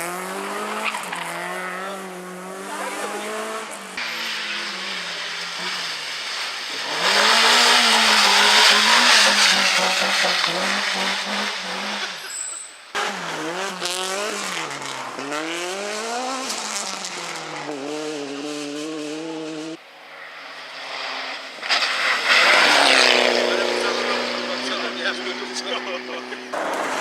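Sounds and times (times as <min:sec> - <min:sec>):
rally car engine revving: 0:00.0 - 0:27.0
tyre and road noise: 0:00.0 - 0:27.0
tyre squeal: 0:07.1 - 0:12.9.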